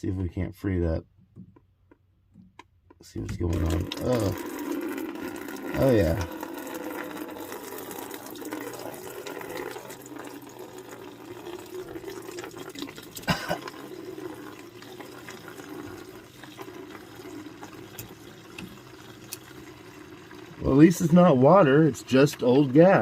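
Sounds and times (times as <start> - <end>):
gasoline pouring into a bucket: 3.2 - 23.0.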